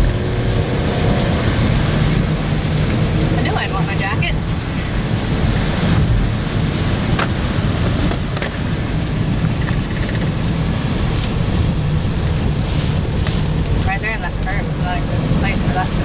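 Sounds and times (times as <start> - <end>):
car driving rumble: 0.0 - 16.0
rain: 0.0 - 16.0
wind noise: 0.0 - 16.0
sharp ticks: 9.6 - 10.4.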